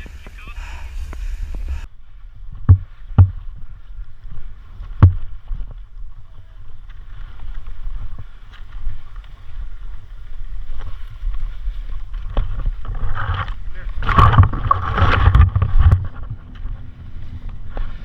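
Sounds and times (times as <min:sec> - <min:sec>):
wind rumble on microphone: 0:00.0 - 0:18.0
sharp thumps: 0:02.5 - 0:03.6, 0:04.8 - 0:05.7, 0:12.4 - 0:16.9.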